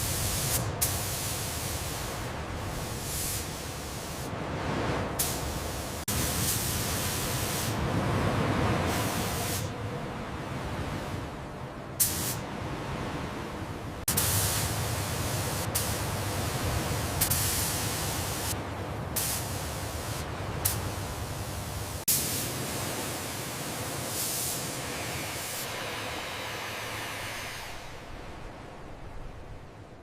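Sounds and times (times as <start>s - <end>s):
steady rushing hiss: 0.0s - 4.3s, 5.1s - 7.8s, 8.9s - 9.8s, 12.0s - 12.5s, 14.0s - 28.5s.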